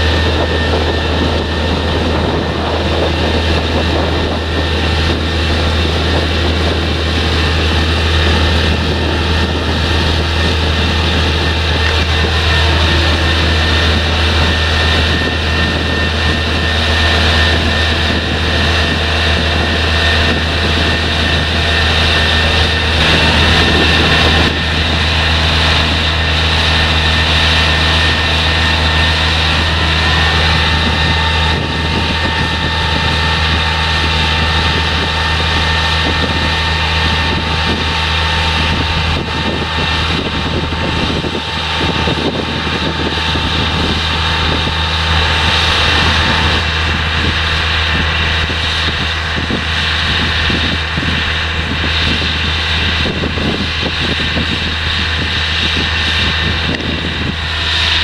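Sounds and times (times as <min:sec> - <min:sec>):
diesel engine drone: 0:00.0 - 0:58.0
machinery high whine: 0:00.0 - 0:58.0.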